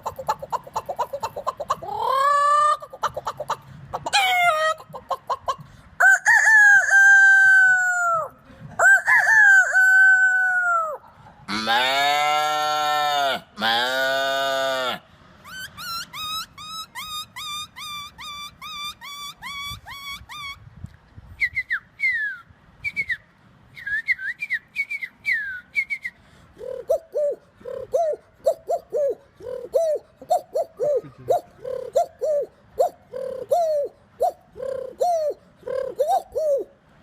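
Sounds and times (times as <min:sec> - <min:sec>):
dove-like cooing: 0:00.0 - 0:05.6, 0:26.6 - 0:36.8
man whistling bird calls: 0:15.4 - 0:20.6, 0:21.4 - 0:36.7.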